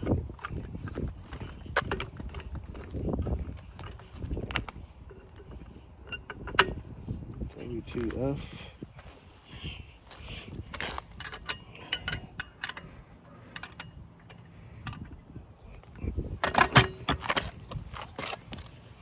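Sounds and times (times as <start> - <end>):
metal hand tools clinking: 10.3 - 14.0.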